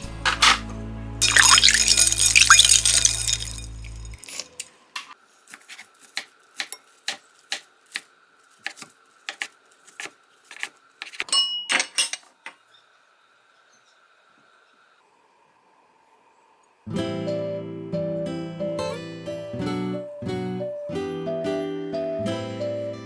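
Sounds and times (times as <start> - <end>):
kitchenware clattering and ringing: 0.3 - 5.1, 11.3 - 12.4
kitchenware clinking: 0.3 - 5.2, 11.3 - 12.6.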